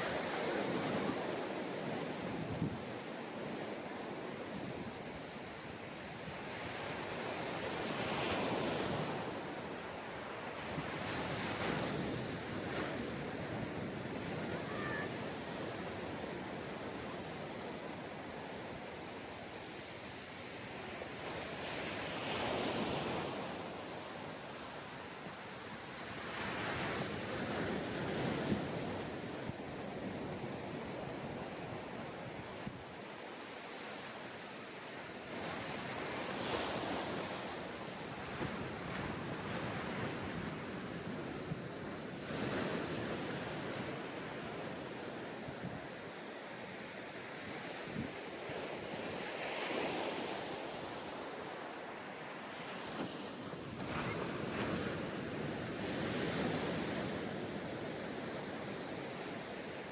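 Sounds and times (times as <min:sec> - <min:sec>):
sea waves breaking on beach: 0:46.6 - 0:59.9.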